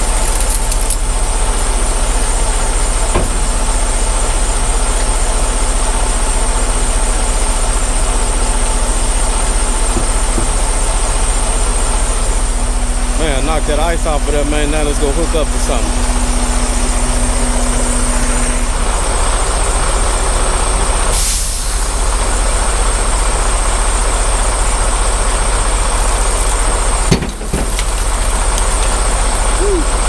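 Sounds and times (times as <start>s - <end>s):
diesel truck engine running: 0.0s - 30.0s
air release hiss: 21.1s - 22.7s.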